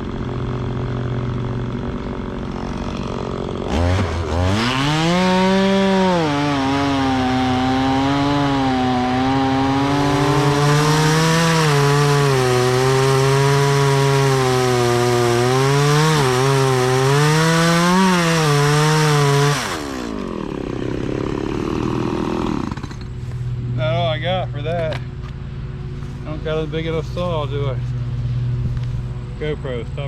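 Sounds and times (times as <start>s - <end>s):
chainsaw cutting wood: 0.0s - 23.2s
chainsaw idling: 0.0s - 23.4s.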